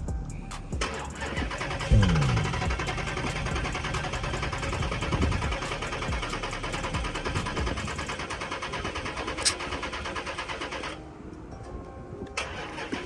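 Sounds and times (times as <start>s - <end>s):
car engine cranking: 0.8s - 11.0s, 12.4s - 13.0s
sharp click: 9.4s - 9.7s.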